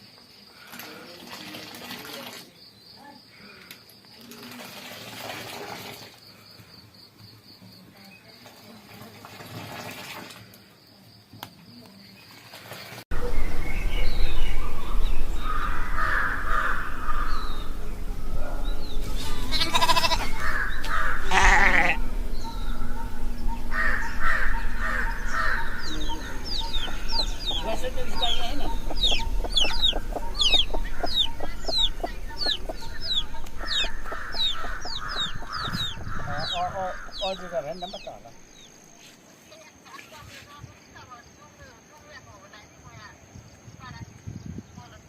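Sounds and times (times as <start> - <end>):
low rumble: 13.1 - 38.7
goats bleating: 19.4 - 20.4, 21.2 - 22.0.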